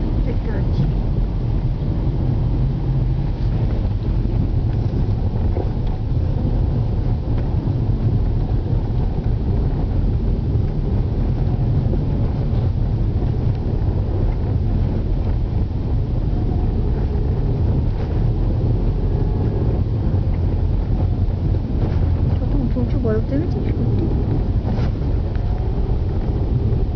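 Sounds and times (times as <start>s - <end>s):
car engine rumble: 0.0s - 26.9s.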